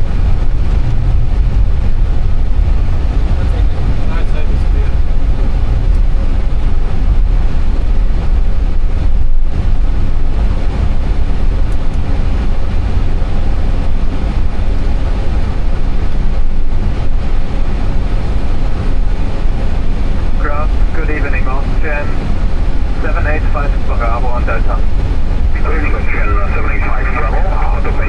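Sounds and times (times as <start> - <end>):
airliner cockpit rumble and hiss: 0.0 - 28.0.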